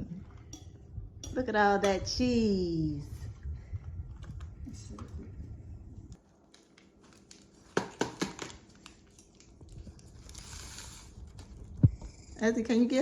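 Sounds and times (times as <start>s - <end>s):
plastic packaging crinkling: 6.2s - 11.8s.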